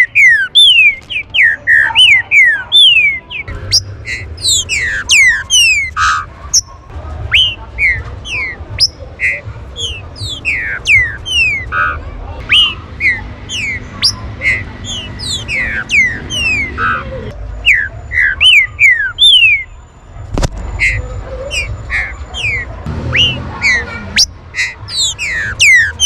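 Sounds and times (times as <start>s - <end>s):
birds whistling calls: 0.0s - 19.9s, 20.7s - 26.0s.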